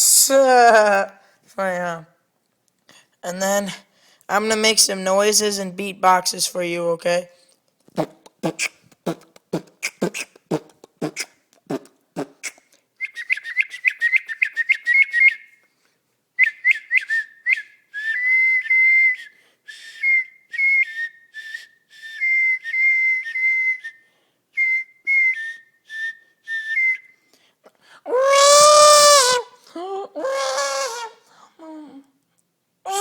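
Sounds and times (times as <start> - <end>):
beatboxing clicks: 7.8 - 12.8
person whistling rapid notes: 8.4 - 11.8, 12.4 - 15.6, 16.4 - 27.2.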